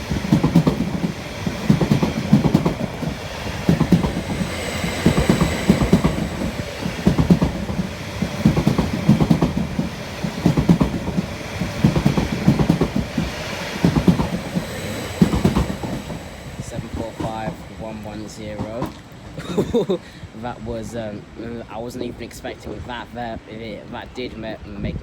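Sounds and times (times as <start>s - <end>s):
train wheels clattering over rails: 0.0s - 19.9s.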